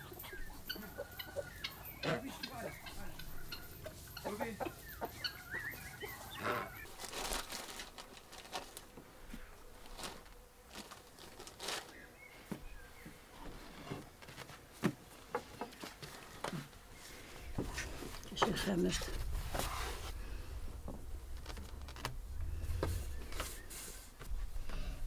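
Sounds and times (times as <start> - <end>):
chickens clucking: 0.0 - 7.0.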